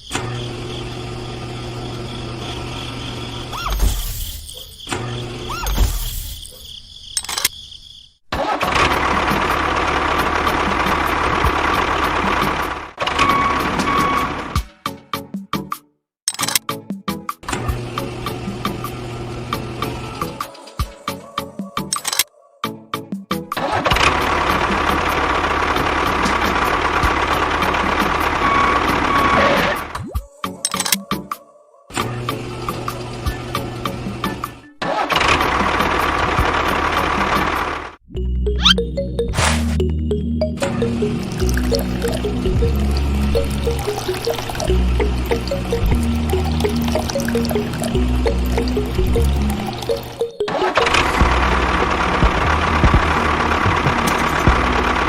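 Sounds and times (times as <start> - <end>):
engine running with regular ticking: 8.4 - 13.0, 23.8 - 29.4, 35.1 - 38.0, 50.7 - 55.0
music: 13.5 - 34.8, 38.1 - 55.0
motor running: 41.1 - 55.0
vehicle engine with low thumps: 51.2 - 55.0.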